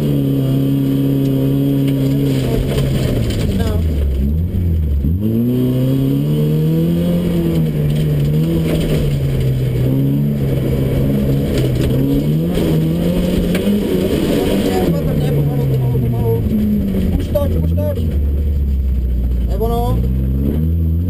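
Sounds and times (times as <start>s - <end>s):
car engine revving under full throttle: 0.0s - 21.0s.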